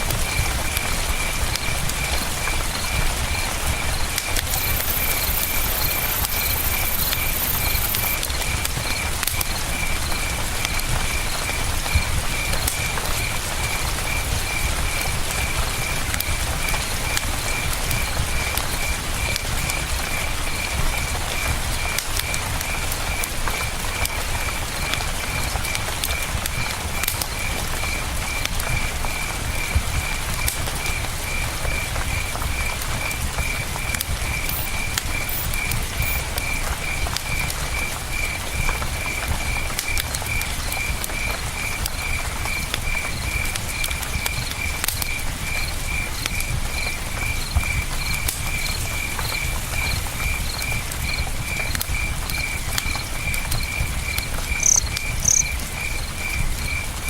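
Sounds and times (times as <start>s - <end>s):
campfire crackling: 0.0s - 57.0s
cricket chirping: 0.2s - 12.6s, 30.8s - 39.5s, 40.3s - 57.0s
higher-pitched cricket chirping: 4.5s - 8.2s, 34.4s - 36.2s, 52.4s - 56.8s.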